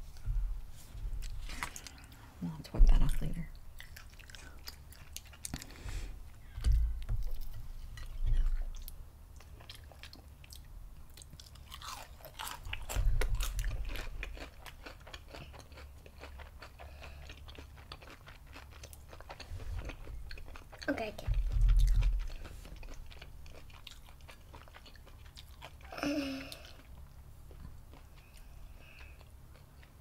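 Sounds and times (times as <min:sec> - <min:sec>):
crunchy chewing: 0:03.8 - 0:05.8, 0:07.3 - 0:25.9.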